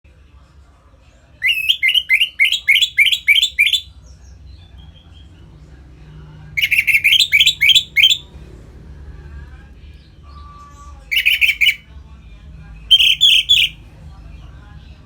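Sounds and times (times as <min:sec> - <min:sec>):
thrush singing whistled notes: 0:01.4 - 0:03.9, 0:06.6 - 0:08.3, 0:11.1 - 0:11.8, 0:12.9 - 0:13.8.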